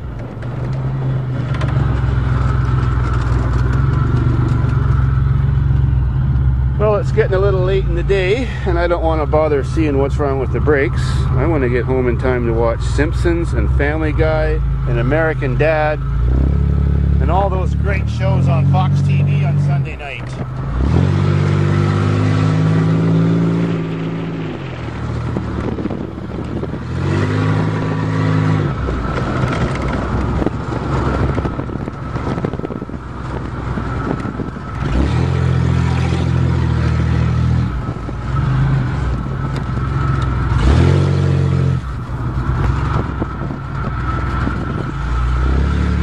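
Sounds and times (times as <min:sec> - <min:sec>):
car engine pulling: 0:00.0 - 0:46.0
rattling and scraping: 0:00.0 - 0:46.0.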